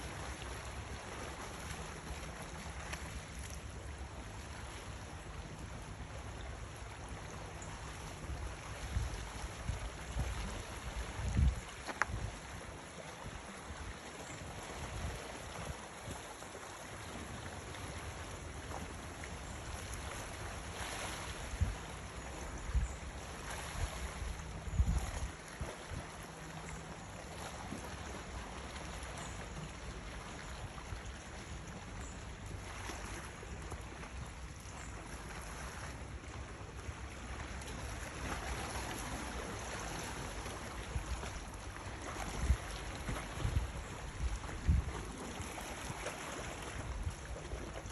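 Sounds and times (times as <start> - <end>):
wind rumbling on microphone: 8.4 - 13.9, 22.5 - 26.1, 40.8 - 47.9.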